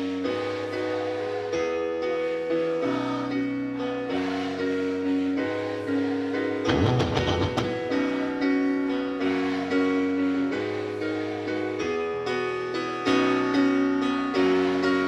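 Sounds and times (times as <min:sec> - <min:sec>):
clattering run of drum hits: 0:06.7 - 0:07.9
electric guitar chords: 0:06.7 - 0:08.6.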